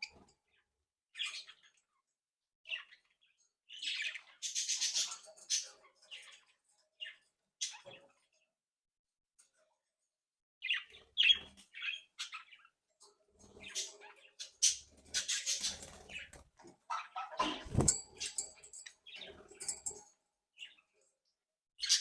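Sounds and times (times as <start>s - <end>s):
wing-flapping and scuffling: 17.4s - 18.0s.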